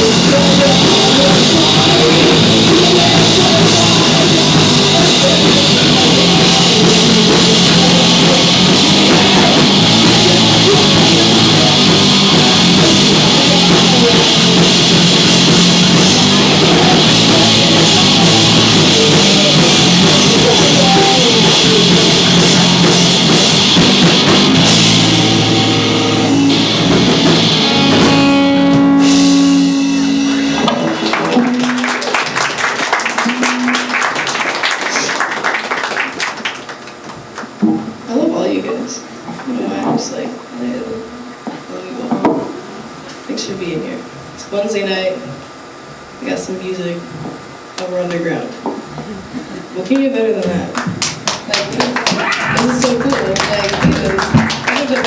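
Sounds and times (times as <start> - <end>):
person singing: 0.0 - 32.2, 33.2 - 35.2
drum kit: 0.0 - 35.6, 50.8 - 55.0
electric guitar: 0.0 - 38.0, 50.8 - 55.0.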